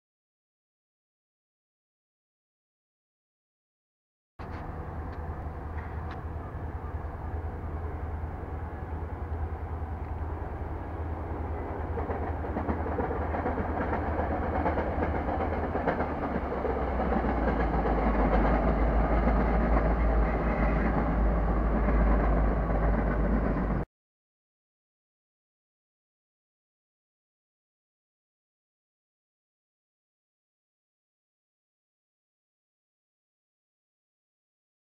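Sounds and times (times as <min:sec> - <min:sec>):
train rumbling across bridge: 0:04.4 - 0:23.9.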